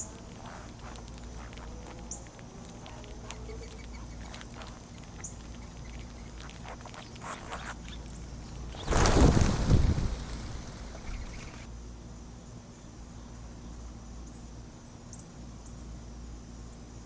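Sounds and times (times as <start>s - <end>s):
songbird chip calls: 0.0s - 8.9s, 10.9s - 11.7s
soft clicks and patter from feeding: 0.0s - 9.1s.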